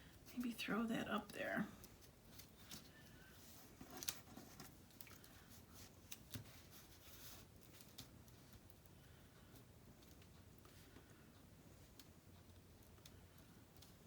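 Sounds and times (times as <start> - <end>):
paper rustling: 1.8 - 8.6
light clicks and taps: 3.8 - 14.0.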